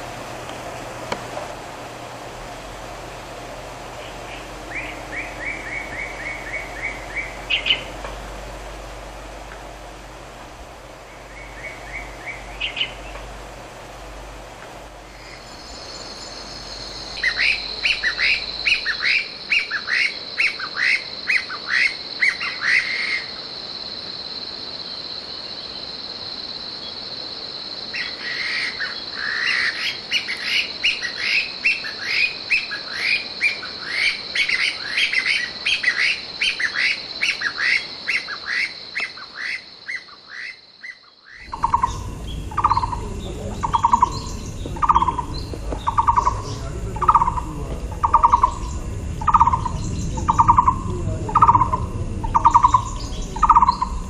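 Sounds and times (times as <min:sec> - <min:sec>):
steady high-pitched buzz: 0:00.0 - 0:21.4, 0:41.4 - 0:54.0
bird singing high falling notes: 0:03.9 - 0:08.0, 0:11.0 - 0:13.2, 0:15.1 - 0:20.7, 0:40.9 - 0:54.0
bird with lower even notes: 0:41.4 - 0:54.0.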